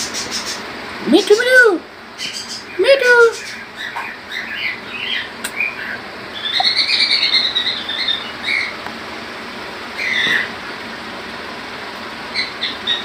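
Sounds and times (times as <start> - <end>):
birds chirping: 0.0 - 8.9, 9.8 - 10.6, 12.2 - 13.0
wavering whistled bird call: 3.4 - 8.8.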